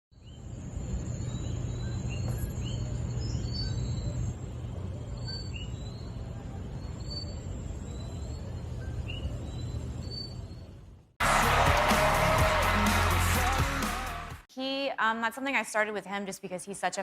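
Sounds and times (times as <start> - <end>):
small birds chirping: 0.2 - 10.6.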